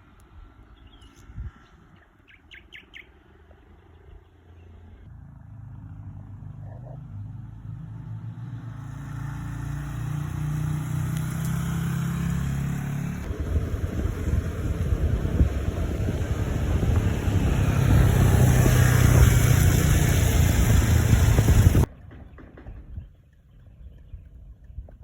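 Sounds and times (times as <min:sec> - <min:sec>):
bird chirps: 0:00.8 - 0:03.2
vehicle engine approaching: 0:02.8 - 0:22.0.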